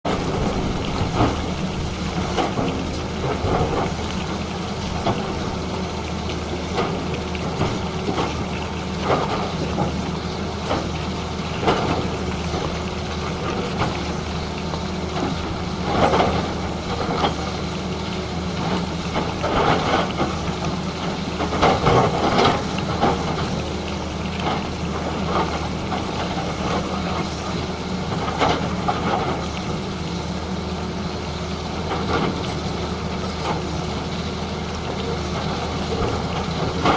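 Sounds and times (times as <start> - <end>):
bucket knocking and scraping road: 0.1 - 5.7
excavator diesel engine running: 0.1 - 36.9.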